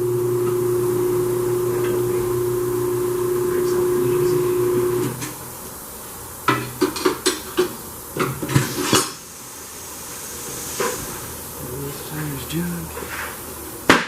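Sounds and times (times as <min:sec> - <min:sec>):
machine hum: 0:00.0 - 0:06.9.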